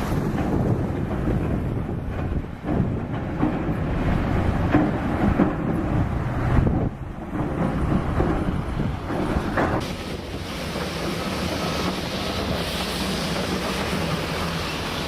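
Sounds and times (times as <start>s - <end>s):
hiss of wind or water: 0.0s - 2.0s, 9.8s - 15.0s
wind noise on microphone: 0.0s - 14.2s.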